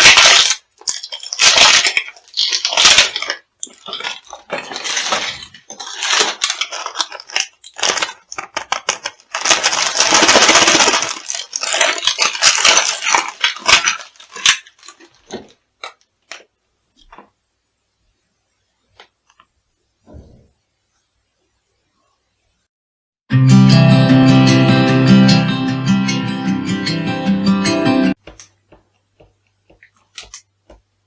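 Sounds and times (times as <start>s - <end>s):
crunchy food crushed underfoot: 0.0s - 17.4s, 28.2s - 30.8s.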